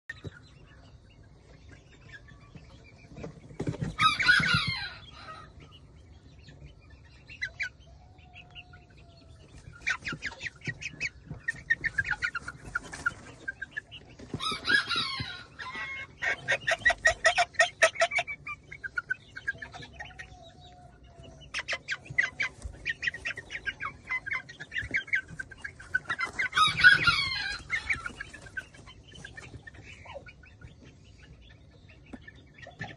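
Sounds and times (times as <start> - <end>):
chickens clucking: 0.1 - 32.9
harsh chicken calls: 3.7 - 5.6, 11.7 - 29.8.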